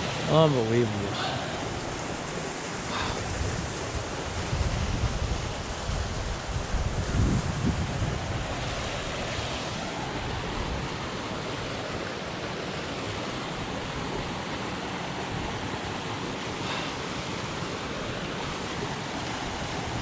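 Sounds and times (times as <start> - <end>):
waterfall rushing: 0.0 - 4.6, 8.2 - 20.0
wind buffeting microphone: 1.6 - 11.1.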